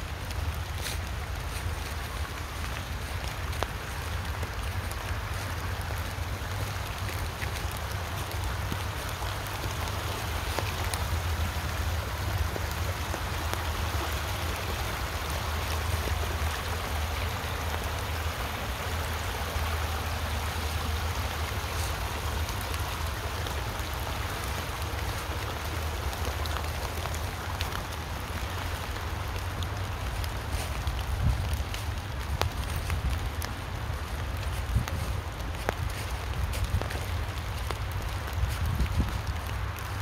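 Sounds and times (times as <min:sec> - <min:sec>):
creek water rushing: 0:00.0 - 0:40.0
rain falling: 0:00.0 - 0:40.0.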